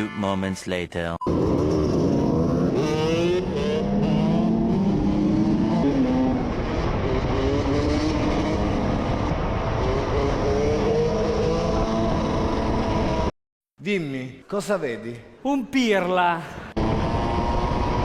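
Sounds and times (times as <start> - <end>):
motocross engine revving: 1.3 - 13.3.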